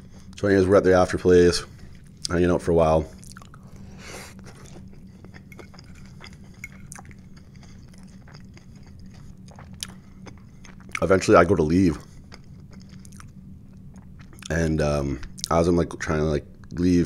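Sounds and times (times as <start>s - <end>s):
faint low hum: 0.0s - 17.0s
person chewing: 3.1s - 11.3s, 12.0s - 14.6s.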